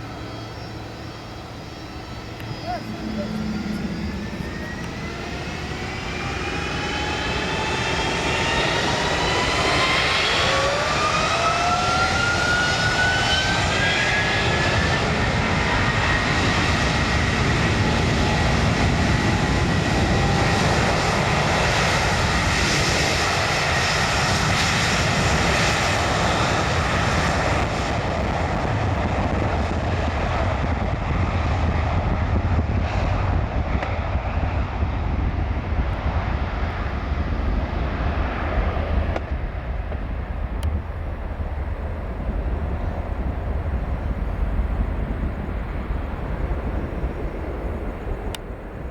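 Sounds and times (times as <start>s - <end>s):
jet engines spooling up: 0.0s - 30.9s
jet roar: 0.0s - 48.9s.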